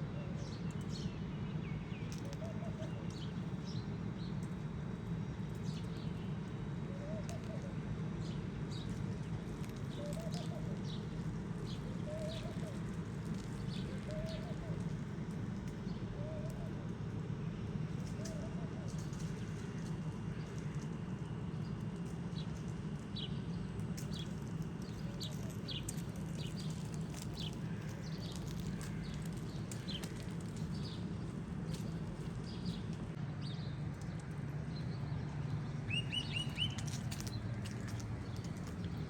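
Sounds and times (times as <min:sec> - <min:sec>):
low city background hum: 0:00.0 - 0:39.0
small birds chirping: 0:24.0 - 0:35.0, 0:35.9 - 0:39.0.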